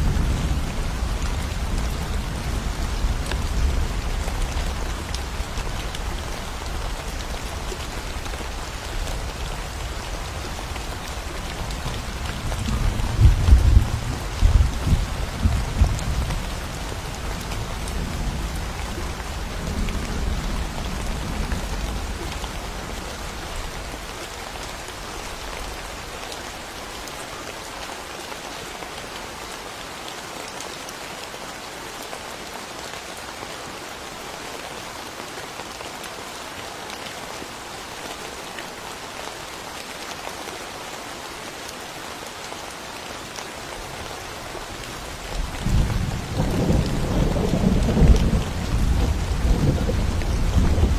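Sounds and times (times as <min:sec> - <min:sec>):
steady rain falling: 0:00.0 - 0:50.9
low rumble of thunder: 0:11.2 - 0:24.0, 0:45.2 - 0:50.9.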